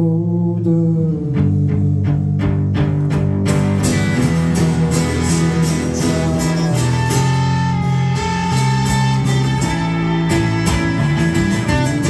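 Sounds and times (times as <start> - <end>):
rock band playing live: 2.4 - 12.0
person singing: 4.2 - 12.0
sharp percussive beat: 8.2 - 12.0.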